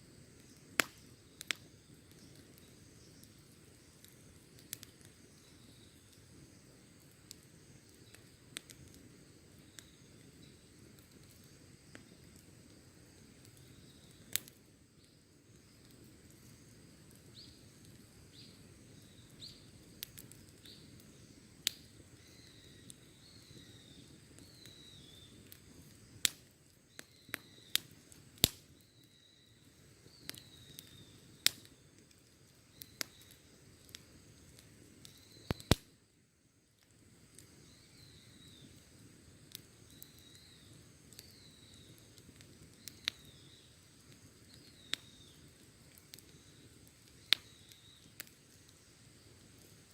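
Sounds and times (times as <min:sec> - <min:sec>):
campfire crackling and popping: 0:00.0 - 0:49.9
low rush of burning: 0:00.0 - 0:49.9
faint high chirping: 0:15.0 - 0:25.8, 0:28.7 - 0:34.1, 0:37.5 - 0:39.0, 0:39.6 - 0:49.4.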